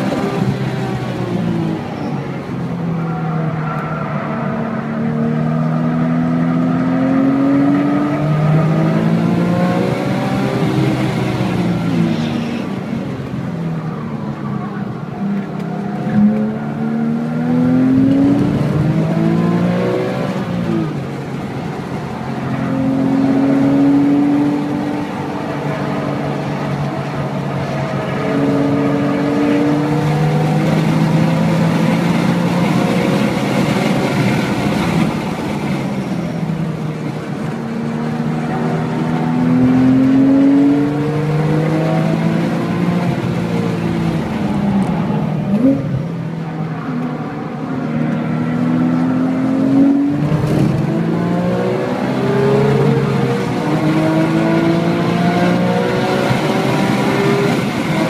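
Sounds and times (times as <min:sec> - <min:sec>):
car engine accelerating hard: 0:00.0 - 0:58.0.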